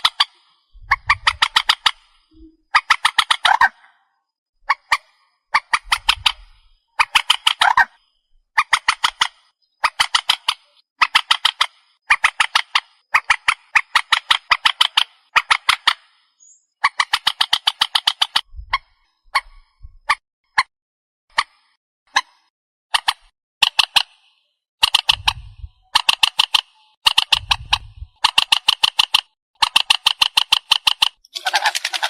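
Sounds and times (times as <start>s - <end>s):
marsh bird calling harsh notes: 0.0s - 3.9s, 31.3s - 32.0s.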